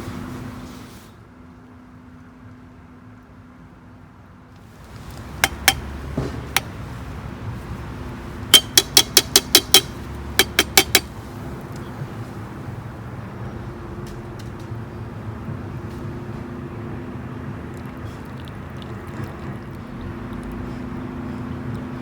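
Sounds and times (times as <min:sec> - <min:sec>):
hard objects clinking: 0:05.0 - 0:06.7, 0:08.5 - 0:11.1.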